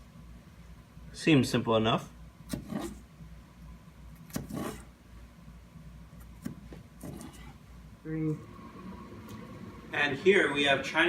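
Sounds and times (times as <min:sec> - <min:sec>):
knife chopping on cutting board: 0:02.5 - 0:03.0, 0:04.2 - 0:04.8, 0:06.3 - 0:07.5.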